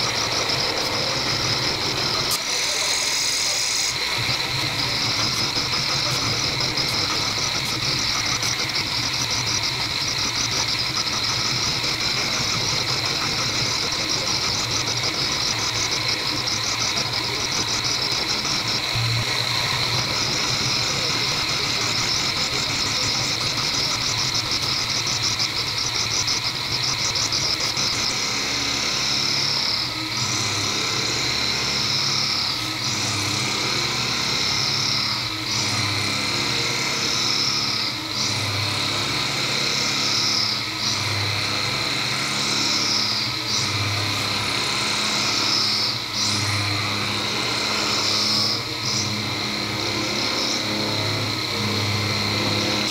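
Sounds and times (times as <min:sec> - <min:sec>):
end mill cutting steel: 0:00.0 - 0:29.9.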